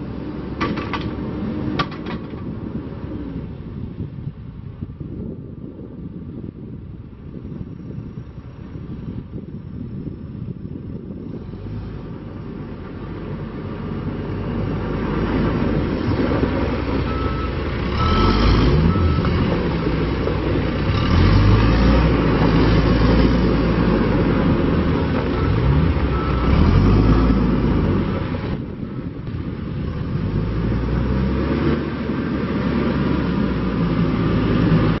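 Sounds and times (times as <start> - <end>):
diesel engine revving: 7.3 - 35.0
reversing alarm beeps: 17.1 - 19.4.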